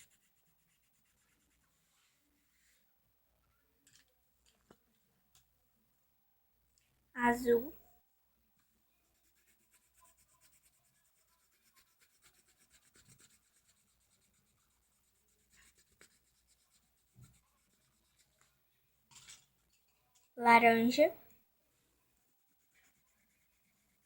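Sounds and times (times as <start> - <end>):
marker scratching on paper: 0.0 - 2.1, 9.0 - 18.5, 22.2 - 24.0.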